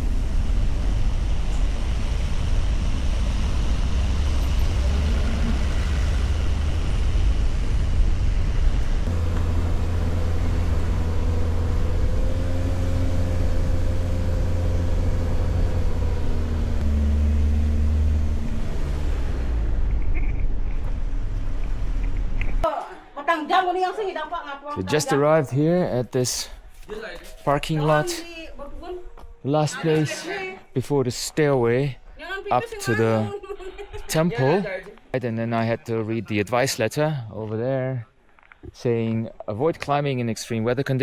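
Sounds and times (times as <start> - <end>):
car engine running: 0.0 - 22.5
road rumble: 0.0 - 22.6
steady engine hum: 0.0 - 22.6.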